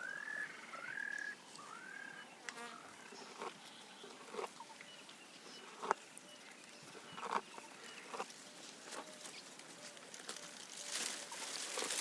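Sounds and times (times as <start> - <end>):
foliage rustling and crackling: 6.1 - 12.0.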